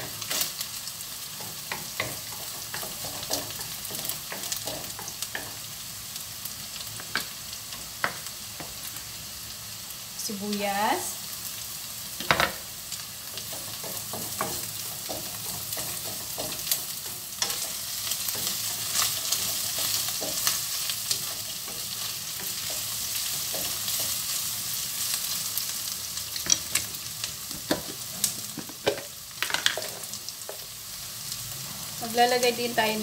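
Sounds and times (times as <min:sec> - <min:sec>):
food sizzling in a wok: 0:00.0 - 0:33.0
wooden spoon knocking on pan: 0:12.2 - 0:12.6, 0:13.4 - 0:16.9, 0:27.5 - 0:30.1.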